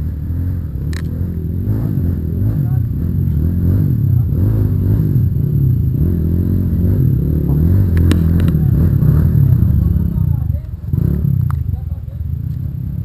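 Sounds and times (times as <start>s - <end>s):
vehicle engine revving: 0.0s - 13.0s
sharp clicks: 0.9s - 1.2s, 7.9s - 8.6s.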